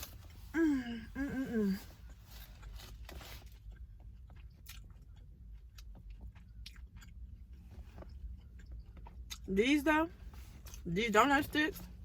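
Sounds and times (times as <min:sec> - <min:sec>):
faint low rumble: 0:00.0 - 0:12.0
chewing and mouth sounds: 0:01.8 - 0:09.8.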